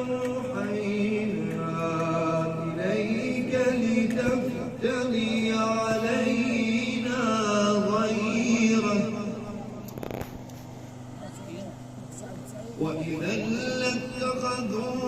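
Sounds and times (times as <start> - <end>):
man chanting recitation: 0.0 - 9.9, 12.6 - 15.0.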